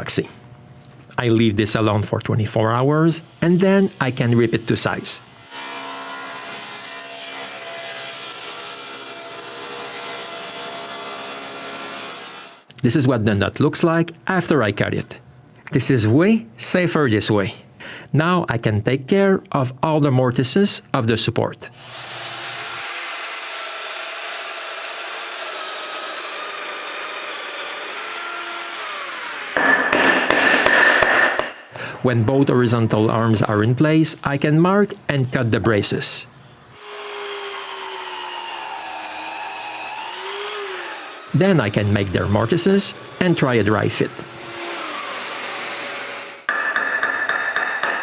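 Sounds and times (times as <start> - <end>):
power saw cutting board: 3.4 - 12.7, 21.8 - 30.4, 36.8 - 46.5.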